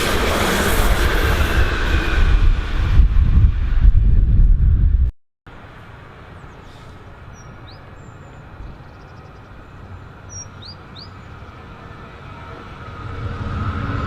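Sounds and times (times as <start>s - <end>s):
train approaching: 0.0s - 4.2s, 5.5s - 14.0s
bird chirps: 6.4s - 11.4s.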